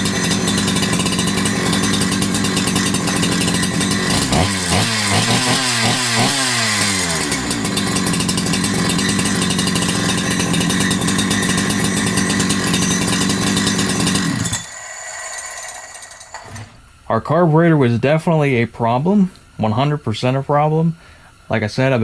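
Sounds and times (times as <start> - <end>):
chainsaw engine revving and idling: 0.0 - 16.7.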